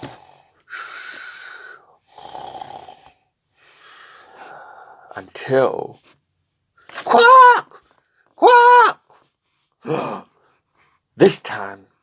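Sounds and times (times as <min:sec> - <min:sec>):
person imitating snoring: 0:02.1 - 0:03.2, 0:09.8 - 0:10.3.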